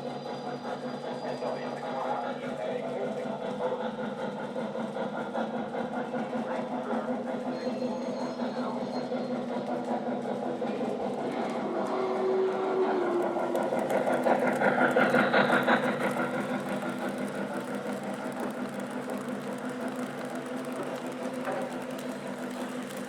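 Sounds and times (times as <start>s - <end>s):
electronic railroad sounds: 6.2s - 23.0s
model train running gear rattle: 10.2s - 23.0s.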